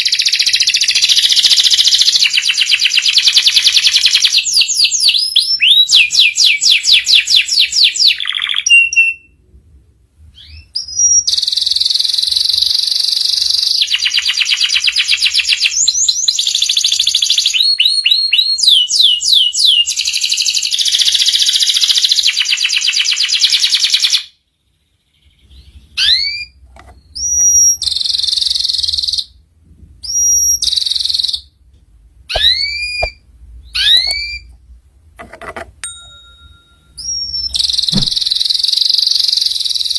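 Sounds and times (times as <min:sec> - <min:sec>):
canary singing trills: 0:00.0 - 0:09.4, 0:10.3 - 0:29.4, 0:32.3 - 0:34.8, 0:35.8 - 0:39.9
whistled bird notes: 0:37.0 - 0:39.9.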